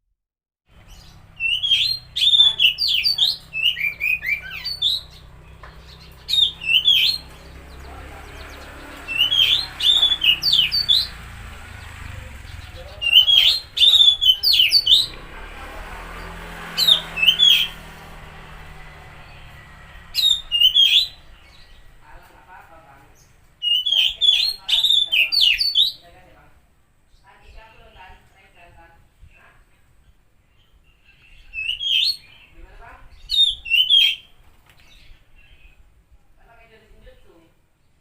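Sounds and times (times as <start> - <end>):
bird singing whistled notes: 0.7 - 11.2, 12.4 - 15.2, 16.8 - 17.9, 19.2 - 22.0, 23.6 - 26.0, 30.5 - 35.8.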